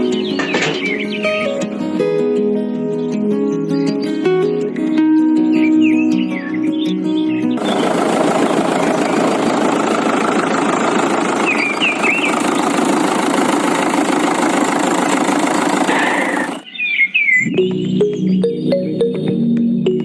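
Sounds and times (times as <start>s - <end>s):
bird-like chirps: 0.0s - 1.6s, 3.0s - 9.5s, 10.3s - 12.8s, 15.9s - 18.7s
engine running roughly: 7.5s - 16.6s.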